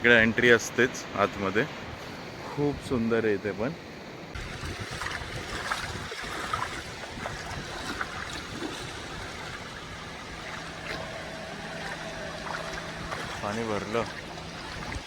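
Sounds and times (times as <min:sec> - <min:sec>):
sea waves washing onto beach: 0:04.3 - 0:15.0.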